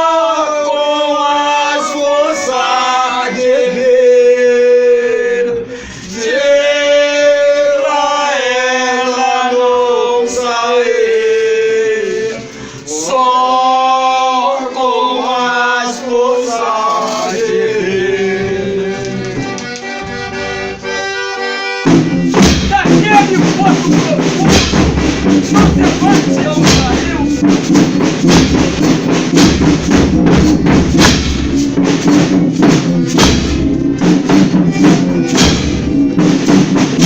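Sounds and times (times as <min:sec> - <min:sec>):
singers holding long notes: 0:00.0 - 0:27.7, 0:33.9 - 0:36.3
instrumental accompaniment: 0:15.2 - 0:37.0.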